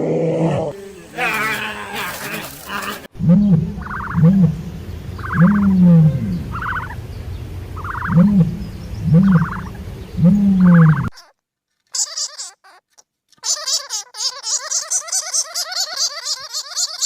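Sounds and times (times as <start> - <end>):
animal calling: 0.7 - 4.6.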